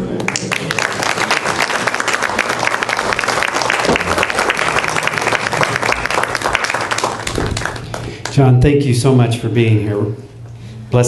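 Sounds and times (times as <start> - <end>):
congregation applauding: 0.1 - 8.5.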